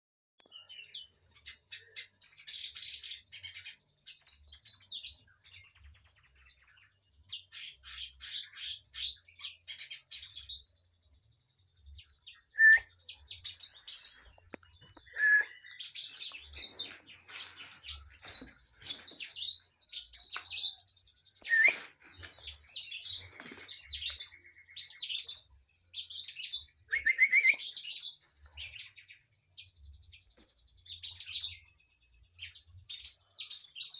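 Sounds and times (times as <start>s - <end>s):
songbird chirps and trills: 0.4s - 33.9s
bird whistled notes: 12.4s - 13.0s, 14.9s - 15.9s, 21.4s - 22.0s, 26.4s - 28.0s.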